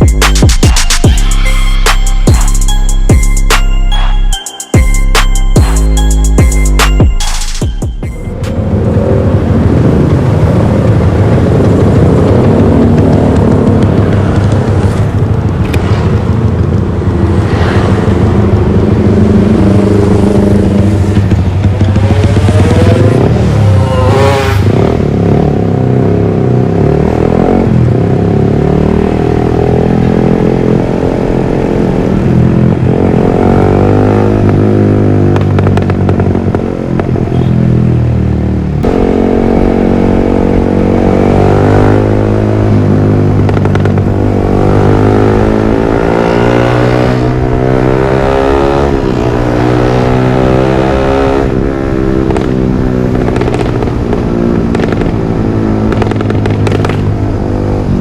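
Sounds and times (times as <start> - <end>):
motorcycle engine revving: 8.3 - 58.0.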